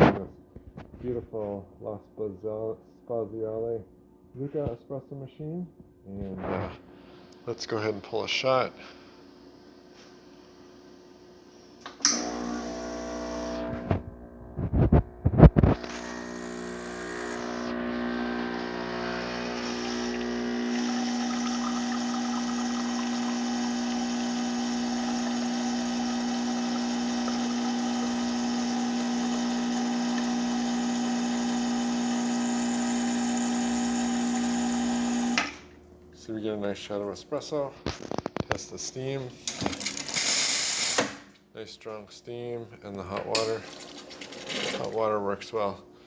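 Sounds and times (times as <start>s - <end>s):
espresso machine pump running: 12.0s - 35.6s, 39.5s - 41.0s.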